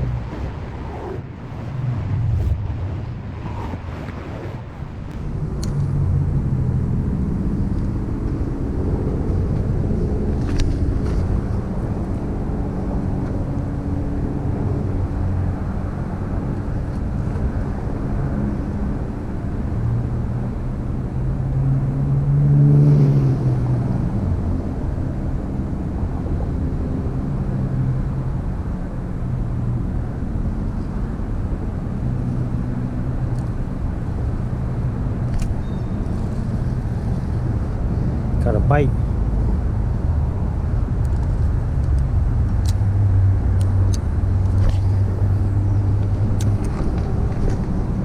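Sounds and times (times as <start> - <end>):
vehicle engine passing: 0.0 - 5.2
low rumble of traffic: 0.0 - 17.7, 18.6 - 48.0.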